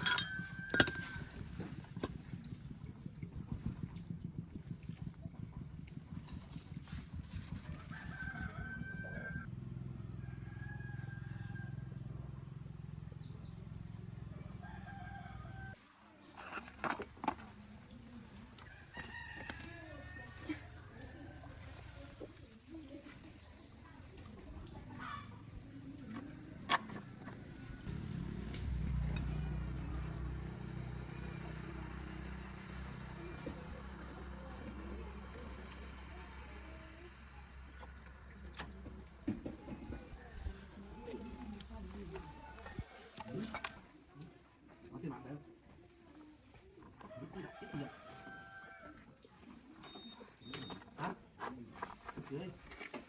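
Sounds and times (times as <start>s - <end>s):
rooster crowing: 7.7s - 9.5s, 10.1s - 12.0s, 14.4s - 15.8s, 47.1s - 49.0s
engine running hum: 24.7s - 42.8s
low motor drone: 27.4s - 38.9s.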